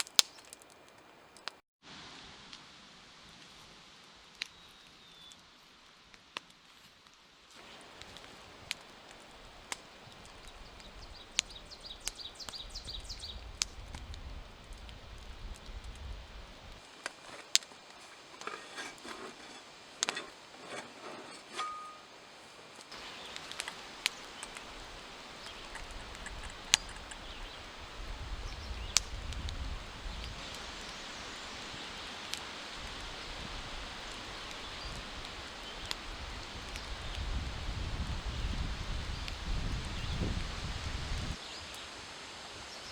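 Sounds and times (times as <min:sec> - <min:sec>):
rain hissing: 0:00.0 - 0:05.3, 0:07.5 - 0:42.9
small songbird singing: 0:07.6 - 0:16.8, 0:22.9 - 0:41.8
drops ticking: 0:07.6 - 0:18.0, 0:22.9 - 0:37.2.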